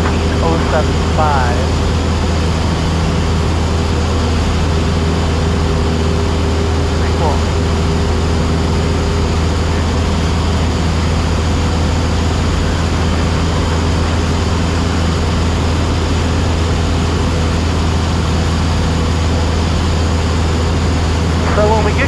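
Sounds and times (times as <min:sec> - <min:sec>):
airplane engine and propeller hum: 0:00.0 - 0:22.0.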